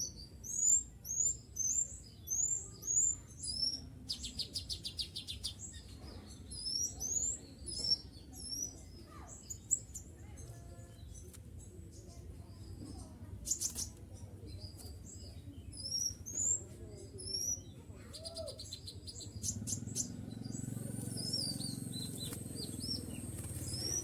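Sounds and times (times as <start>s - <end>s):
songbird whistled notes: 17.3s - 24.0s.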